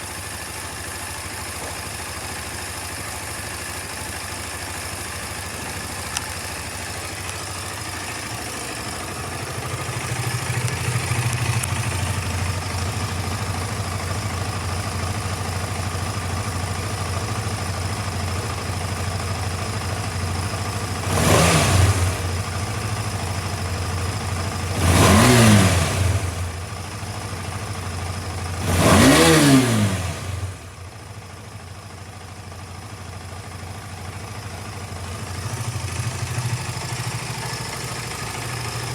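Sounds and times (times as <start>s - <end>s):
motorcycle engine revving: 4.6s - 30.8s, 34.3s - 38.9s.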